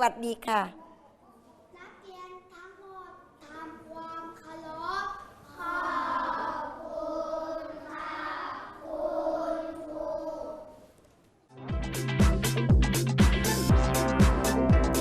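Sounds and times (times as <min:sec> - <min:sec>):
children chanting in unison: 0:05.4 - 0:10.9.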